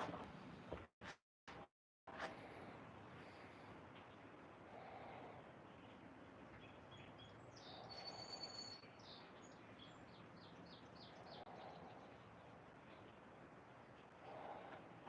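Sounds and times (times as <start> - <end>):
songbird whistling: 6.6 - 9.2.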